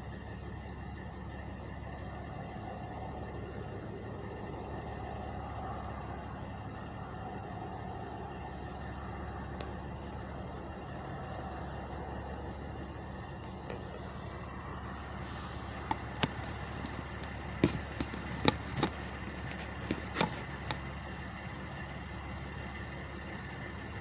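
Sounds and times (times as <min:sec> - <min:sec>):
truck engines idling: 0:00.0 - 0:24.0
sharp clicks and knocks: 0:15.1 - 0:20.8.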